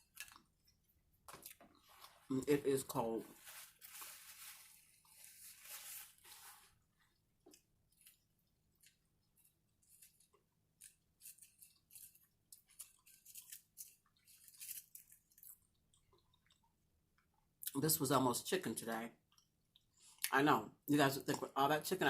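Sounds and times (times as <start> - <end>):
chewing crunchy food: 0.0 - 2.3, 7.1 - 17.7.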